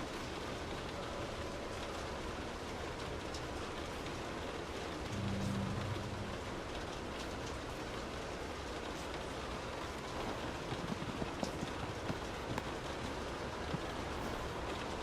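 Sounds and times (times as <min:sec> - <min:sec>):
rain pattering: 0:00.0 - 0:15.0
low rumble: 0:05.0 - 0:07.1.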